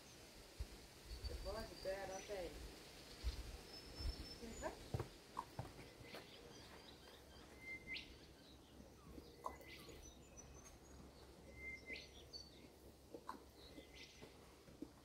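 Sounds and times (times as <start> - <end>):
faint high chirps: 6.1 - 14.4.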